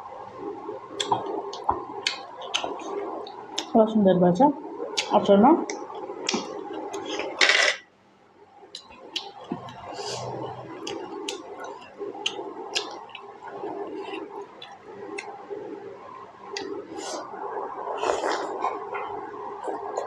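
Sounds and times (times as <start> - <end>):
lip smacks and mouth clicks: 0.9 - 3.7, 5.0 - 7.4, 8.7 - 10.0, 10.8 - 15.4, 16.5 - 17.3
wet chewing: 1.0 - 3.7, 8.8 - 15.4.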